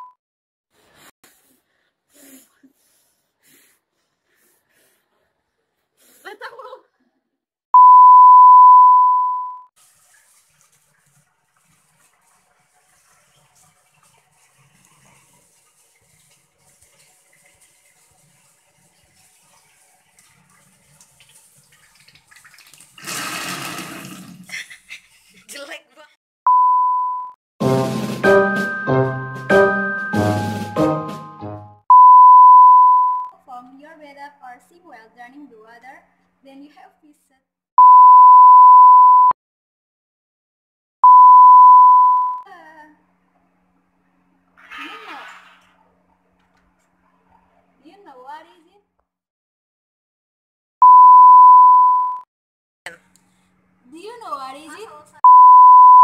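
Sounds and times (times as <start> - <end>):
faint running water: 9.8 - 24.5.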